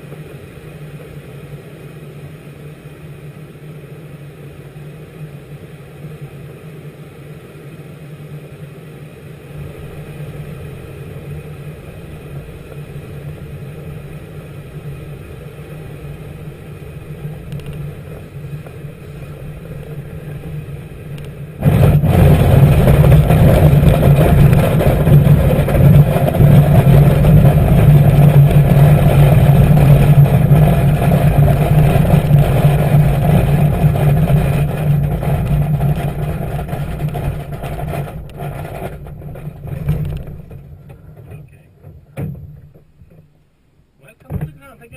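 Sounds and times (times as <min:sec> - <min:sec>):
engine humming: 0:00.0 - 0:44.9.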